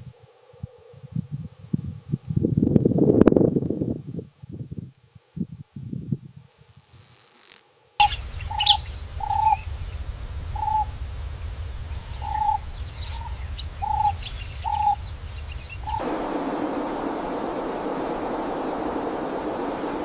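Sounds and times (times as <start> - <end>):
high bird chirps: 8.0 - 16.0
high-pitched insect drone: 8.0 - 20.0
low rumble: 8.0 - 20.0
steady rushing noise: 8.0 - 20.0.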